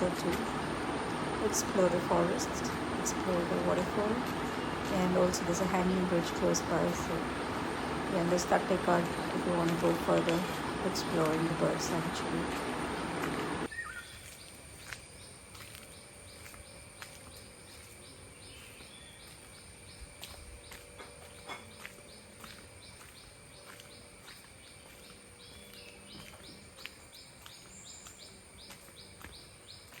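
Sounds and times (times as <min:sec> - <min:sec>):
short bird chirps: 0:13.7 - 0:14.2.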